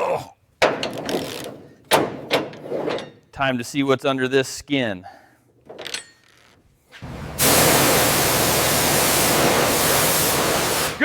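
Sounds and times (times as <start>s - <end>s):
pressure washer spray hissing: 7.0s - 11.0s.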